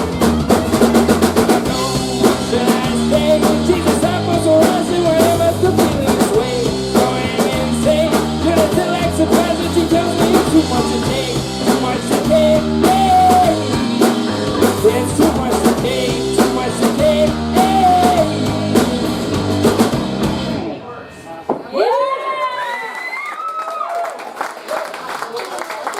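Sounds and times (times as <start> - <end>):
drum kit beat: 0.0 - 20.6
guitars: 0.0 - 21.0.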